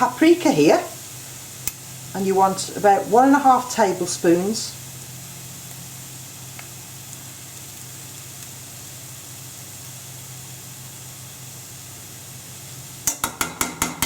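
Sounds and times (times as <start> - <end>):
vegetables hissing in a pan: 0.0 - 14.0
spoon knocking against pan: 13.0 - 14.0.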